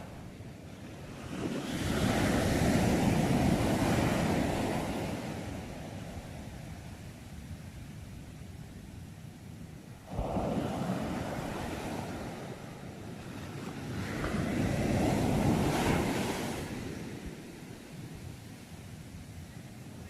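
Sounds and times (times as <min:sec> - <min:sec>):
waves breaking on shore: 0:00.0 - 0:07.8, 0:09.9 - 0:20.0
wind noise on microphone: 0:00.0 - 0:20.0.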